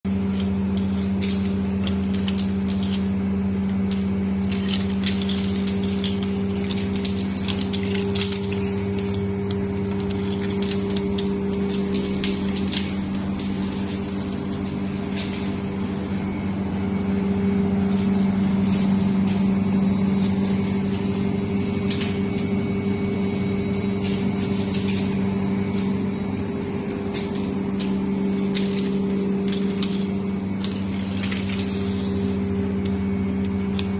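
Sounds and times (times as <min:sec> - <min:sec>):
ice machine humming: 0:00.0 - 0:33.9
crackling clicks: 0:00.1 - 0:33.9.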